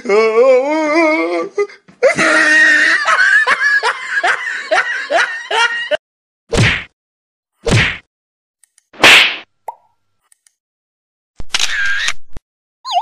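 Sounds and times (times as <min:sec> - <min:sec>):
person laughing hard: 0:02.0 - 0:06.0.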